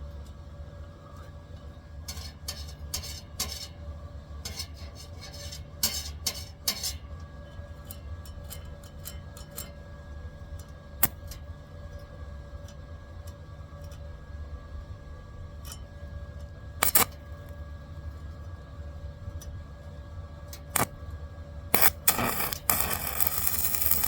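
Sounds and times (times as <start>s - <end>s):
spot welding bursts: 16.8s - 17.1s, 21.8s - 24.0s
sharp click: 16.8s - 17.2s, 21.8s - 24.0s
steady machine hum: 21.7s - 24.0s.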